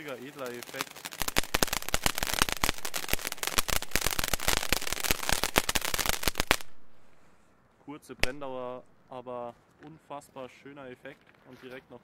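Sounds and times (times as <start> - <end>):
firework fountain crackling: 0.0 - 7.2, 8.2 - 8.8.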